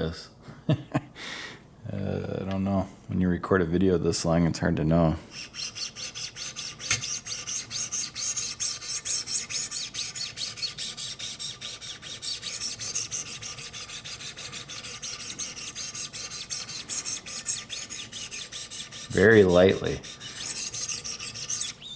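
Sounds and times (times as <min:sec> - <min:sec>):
sharpening stone rasping on knife: 0:05.3 - 0:21.8.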